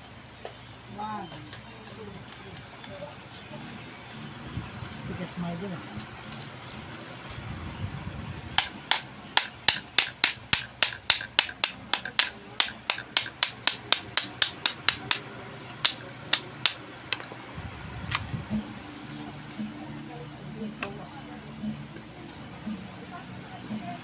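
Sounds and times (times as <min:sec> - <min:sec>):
sharp metallic taps: 0:08.6 - 0:17.3.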